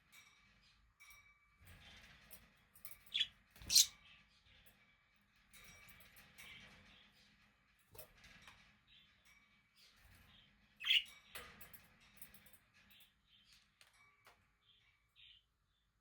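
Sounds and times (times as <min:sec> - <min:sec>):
budgerigars chirping and warbling: 0:03.2 - 0:03.9, 0:10.8 - 0:11.1.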